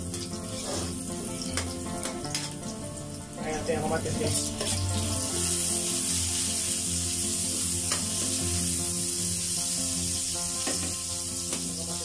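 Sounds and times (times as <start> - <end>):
background music: 0.0 - 12.0
vegetables sizzling in oil: 0.0 - 12.0
metal spatula scraping pan: 0.2 - 2.6, 4.0 - 5.6.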